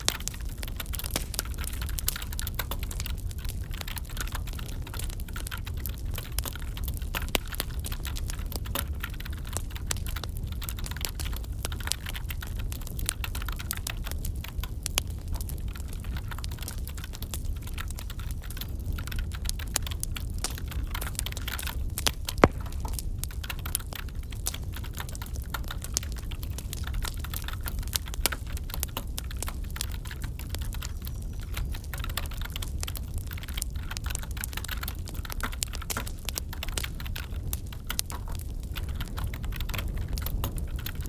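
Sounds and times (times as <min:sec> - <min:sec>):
wood fire crackling: 0:00.0 - 0:41.0.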